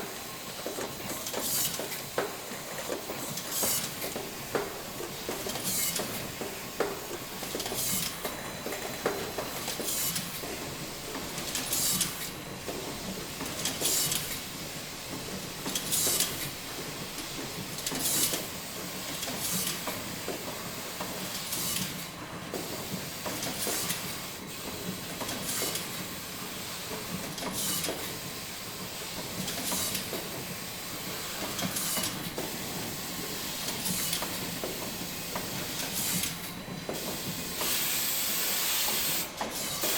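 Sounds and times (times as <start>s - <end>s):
machinery hissing steadily: 37.0s - 39.9s.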